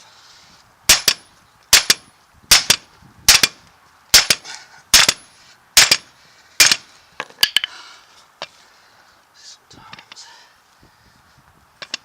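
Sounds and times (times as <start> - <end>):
hammer striking steel: 0.9 - 1.2, 4.2 - 4.4, 5.0 - 6.8.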